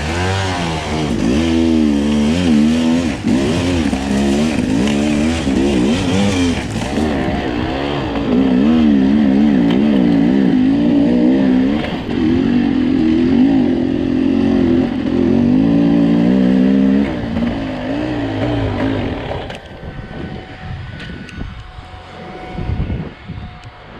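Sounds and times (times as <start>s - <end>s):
two-stroke motorcycle engine revving: 0.0s - 23.9s.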